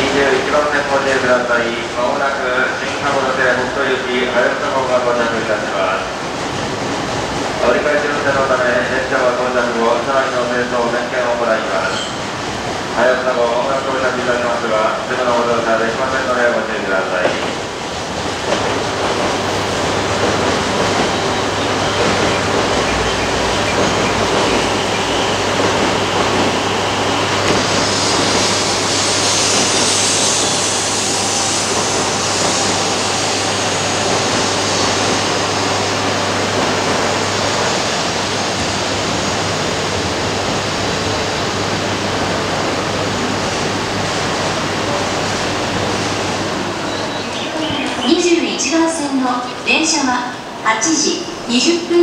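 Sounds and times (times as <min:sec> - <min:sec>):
train pulling into platform: 0:00.0 - 0:52.0
bright hiss: 0:27.6 - 0:35.1.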